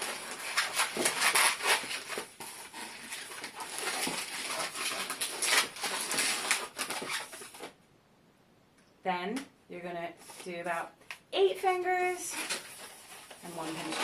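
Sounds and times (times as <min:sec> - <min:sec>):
balloon squeaking and rubbing: 0:00.0 - 0:07.5.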